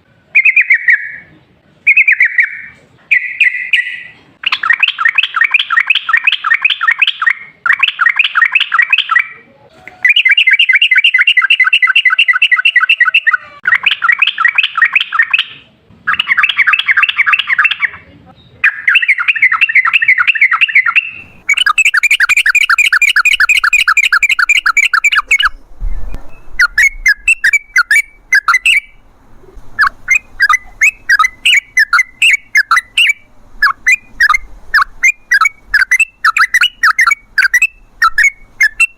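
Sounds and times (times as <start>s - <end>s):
bird singing chattering rolls: 1.9s - 9.4s, 16.1s - 38.9s.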